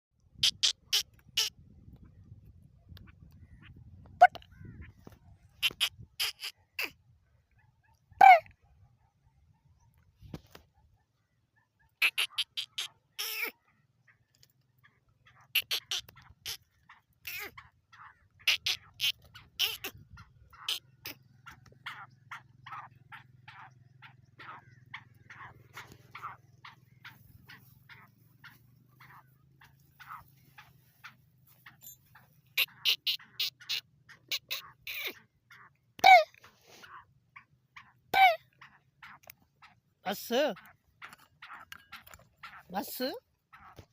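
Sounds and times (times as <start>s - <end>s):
birds chirping: 0.2s - 43.9s.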